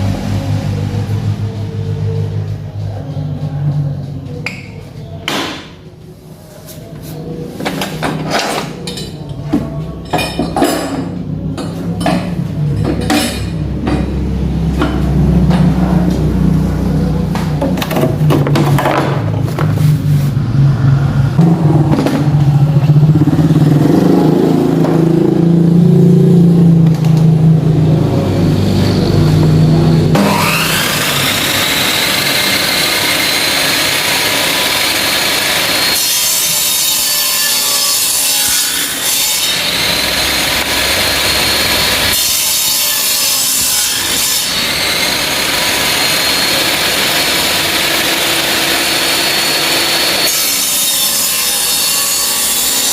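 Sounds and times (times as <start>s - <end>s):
low uneven hum: 0.0s - 30.2s
circular saw motor whining: 27.1s - 36.6s, 39.2s - 42.8s, 43.4s - 51.2s.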